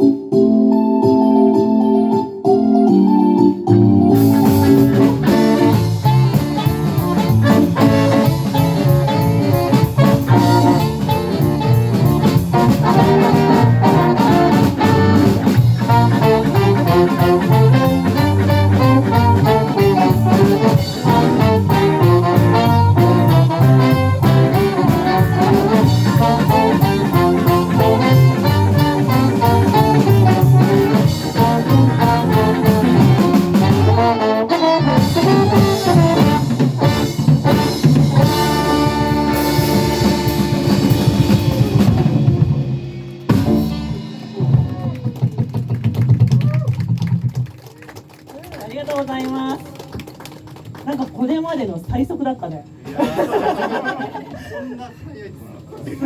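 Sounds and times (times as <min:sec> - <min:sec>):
electric piano: 0:00.0 - 0:45.1
bass: 0:00.0 - 0:49.2
drums: 0:03.7 - 0:50.8
horns: 0:03.9 - 0:45.0.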